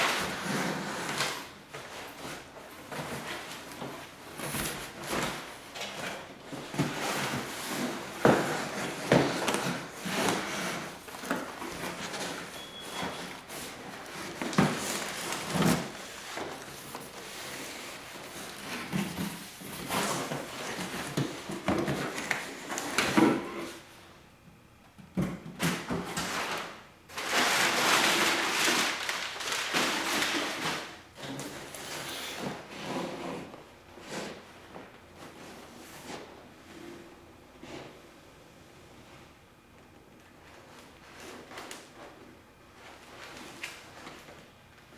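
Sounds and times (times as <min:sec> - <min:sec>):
packaging rustling: 0:26.6 - 0:30.9.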